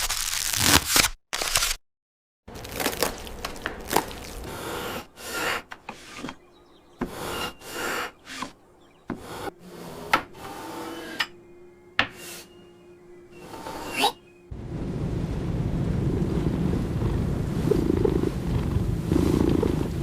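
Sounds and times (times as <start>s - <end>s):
wooden knocks and rubbing: 5.2s - 6.4s, 7.0s - 11.4s, 12.0s - 12.5s.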